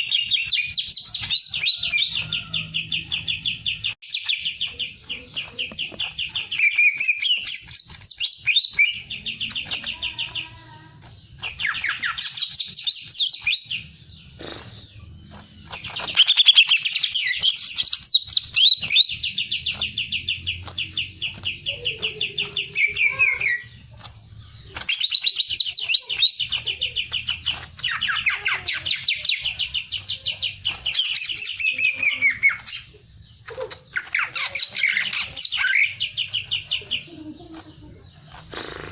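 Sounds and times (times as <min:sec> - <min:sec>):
songbird trilling: 0:11.3 - 0:38.9.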